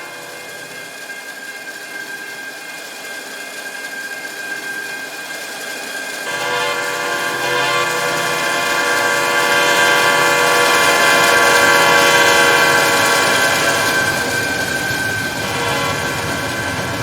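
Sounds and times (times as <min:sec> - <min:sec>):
locomotive air horn: 0:00.0 - 0:00.9, 0:06.2 - 0:17.0
rumble of moving train: 0:00.0 - 0:17.0.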